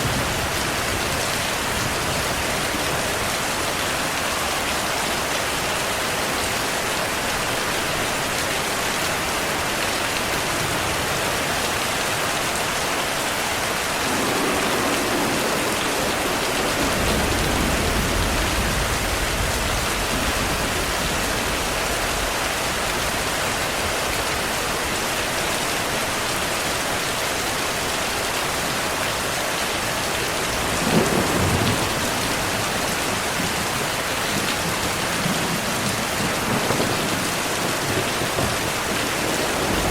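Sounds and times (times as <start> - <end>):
heavy rain: 0.0 - 39.9
rolling thunder: 13.8 - 23.3, 30.5 - 39.9
sharp thunderclap: 14.0 - 22.4, 30.6 - 32.8.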